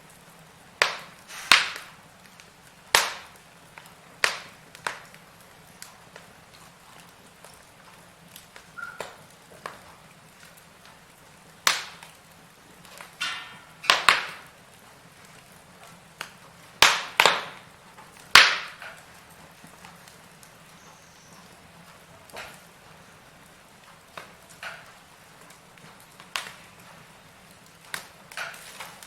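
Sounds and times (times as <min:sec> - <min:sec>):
faint hiss: 0:00.0 - 0:06.5
firewood crackling and popping: 0:00.0 - 0:29.0.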